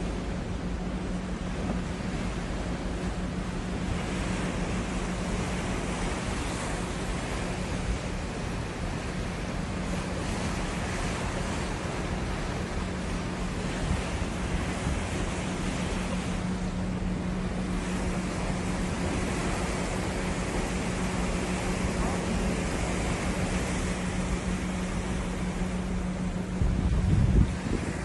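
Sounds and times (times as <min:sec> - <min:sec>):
constant low hum: 0:00.0 - 0:28.0
sea water rushing: 0:00.0 - 0:28.0
wind buffeting microphone: 0:00.6 - 0:28.0.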